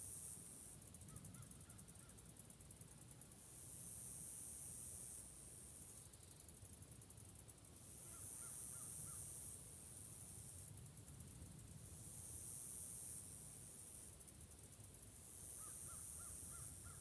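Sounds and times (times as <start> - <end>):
insect chorus buzzing: 14.9 - 17.0.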